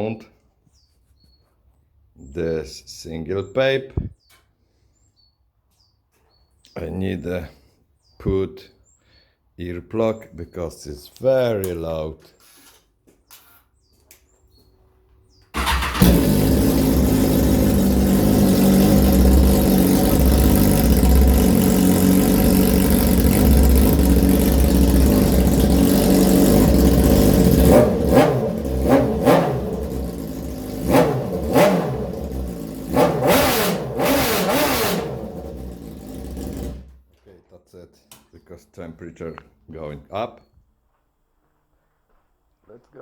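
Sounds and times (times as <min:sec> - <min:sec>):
motorcycle throttle blips: 0:15.5 - 0:37.0
motorcycle engine idling: 0:15.6 - 0:37.0.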